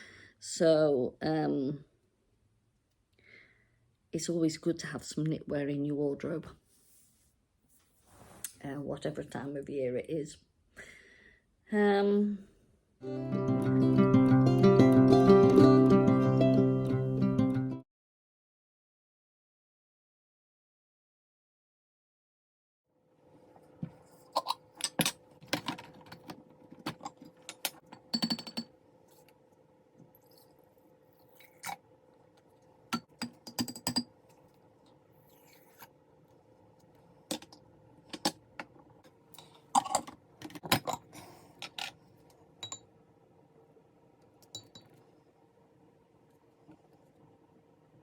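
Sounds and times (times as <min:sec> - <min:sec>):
hard objects clinking and knocking: 0:24.8 - 0:28.7, 0:32.9 - 0:34.1.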